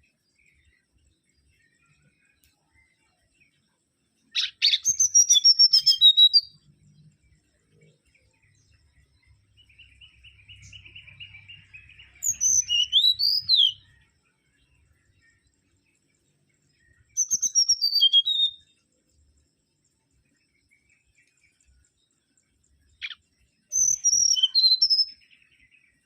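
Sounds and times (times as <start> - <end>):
bird whistling song: 4.3 - 16.0, 16.7 - 19.0, 22.9 - 26.0.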